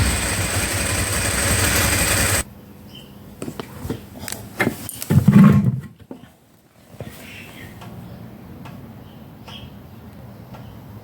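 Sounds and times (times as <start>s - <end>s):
motorcycle engine running: 0.0s - 2.5s.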